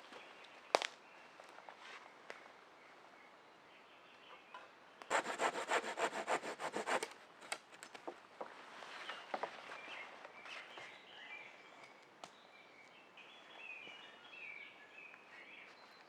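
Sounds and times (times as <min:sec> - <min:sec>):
hand saw cutting wood: 0:05.1 - 0:07.1.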